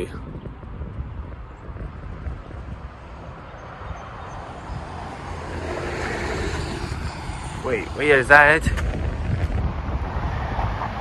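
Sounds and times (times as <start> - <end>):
low rumble of car traffic: 0.6 - 11.0
passing car tyre hiss: 4.5 - 9.0.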